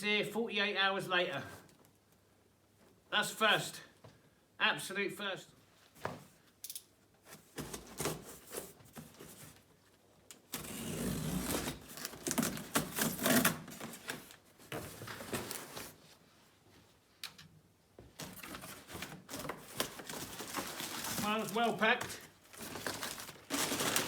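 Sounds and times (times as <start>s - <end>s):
packaging being ripped: 10.6s - 13.7s, 22.6s - 24.0s.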